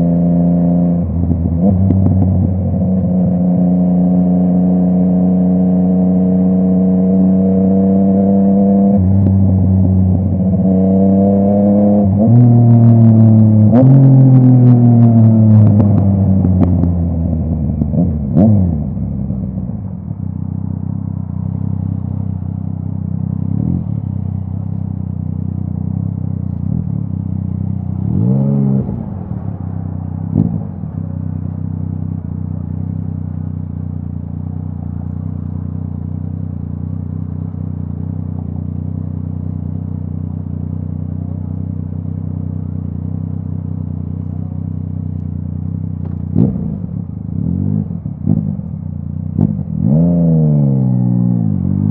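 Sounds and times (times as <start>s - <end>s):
motorcycle throttle blips: 4.6s - 51.9s
motorcycle engine idling: 18.9s - 28.2s, 28.9s - 49.8s.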